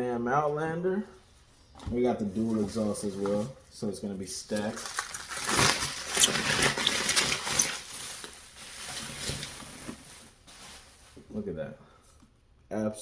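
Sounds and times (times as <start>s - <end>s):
packaging rustling and crinkling: 2.2s - 11.4s.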